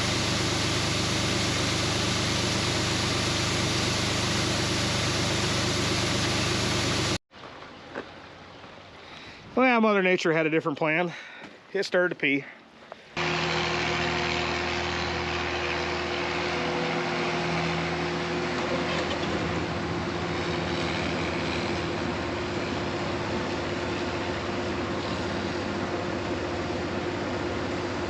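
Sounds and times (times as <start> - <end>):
diesel engine running: 0.0 - 7.2, 13.2 - 28.0.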